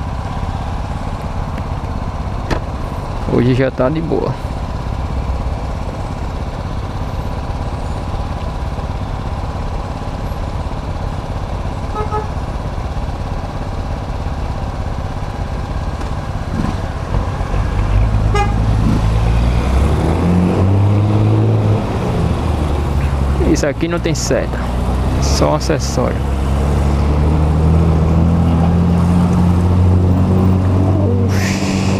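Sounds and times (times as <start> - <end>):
road and wind noise: 0.0 - 31.9
vehicle horn beep: 11.9 - 12.4, 18.3 - 18.6
engine accelerating: 16.0 - 31.9.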